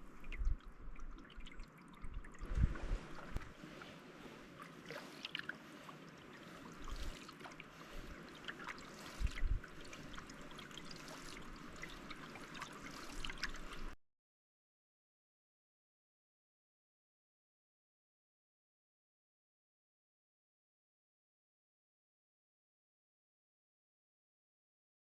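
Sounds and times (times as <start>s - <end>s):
paddle splashes: 0.0s - 14.0s
water trickling and dripping: 0.0s - 14.0s.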